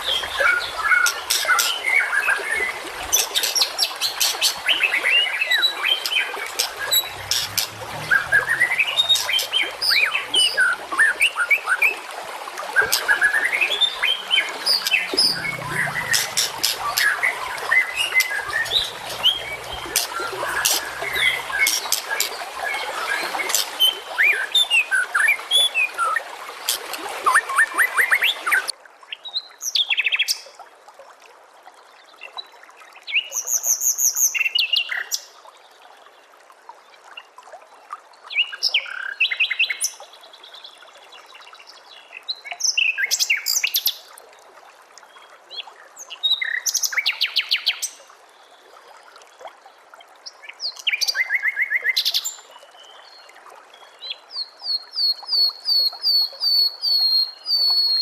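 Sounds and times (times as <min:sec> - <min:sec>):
songbird singing: 0:05.6 - 0:10.6, 0:14.0 - 0:22.8.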